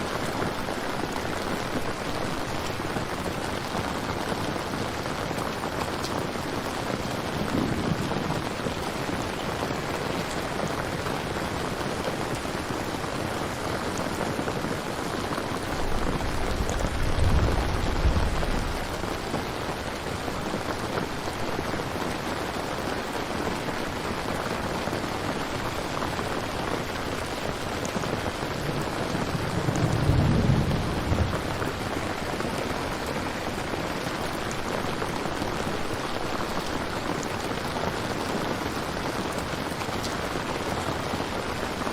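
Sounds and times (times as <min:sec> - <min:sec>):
steady rain: 0:00.0 - 0:41.9
low rolls of thunder: 0:06.7 - 0:10.4, 0:15.6 - 0:19.6, 0:28.2 - 0:33.4.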